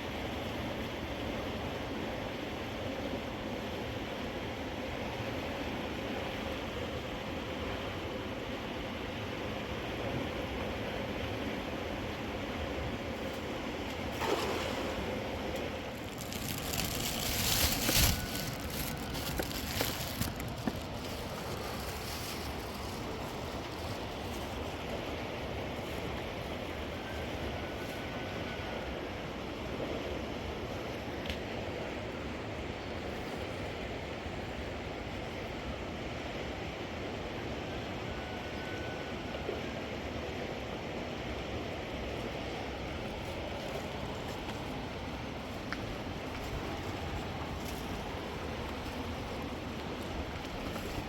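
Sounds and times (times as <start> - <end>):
flowing river water: 0.0 - 27.6, 39.1 - 51.0
sharp rustles and clicks: 15.6 - 23.9.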